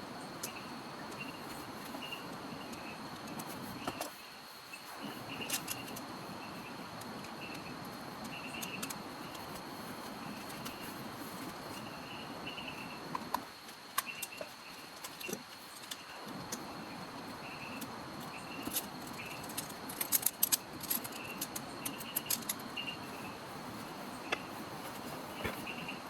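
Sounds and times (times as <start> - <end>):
steady hiss: 0.0 - 26.0
high chirps from birds or insects: 11.7 - 13.1, 13.9 - 19.7, 20.6 - 24.6, 25.2 - 26.0.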